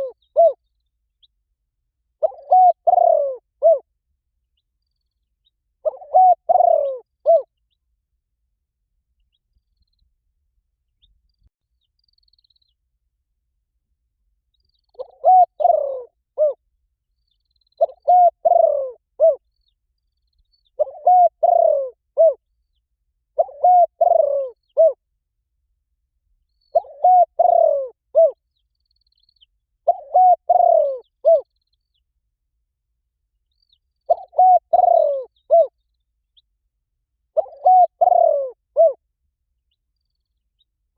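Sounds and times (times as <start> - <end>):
dove cooing: 0.0 - 0.6, 2.2 - 3.9, 5.8 - 7.5, 14.9 - 16.6, 17.8 - 19.4, 20.8 - 22.4, 23.4 - 25.0, 26.7 - 28.4, 29.8 - 31.5, 34.1 - 35.7, 37.4 - 39.0.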